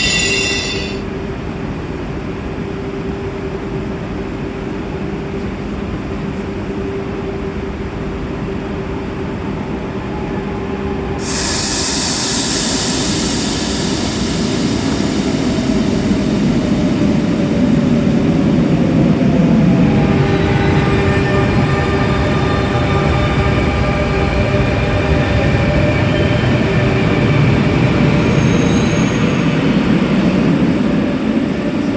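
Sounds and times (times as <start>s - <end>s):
loud hiss: 0.0s - 1.0s, 11.2s - 17.9s
train rumble: 0.0s - 31.9s
train steady hum: 0.0s - 31.9s.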